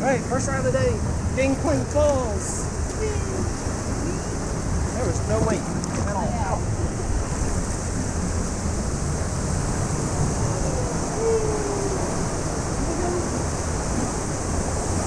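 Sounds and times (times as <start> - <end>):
rushing water: 0.0 - 15.0
wind buffeting microphone: 0.6 - 15.0.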